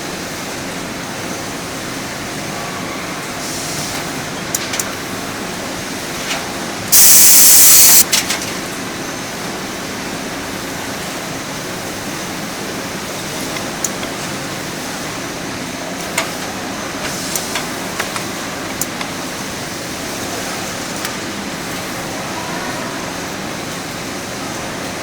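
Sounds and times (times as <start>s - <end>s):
loud hiss: 7.0s - 8.0s
sharp machine clicks: 7.0s - 8.0s.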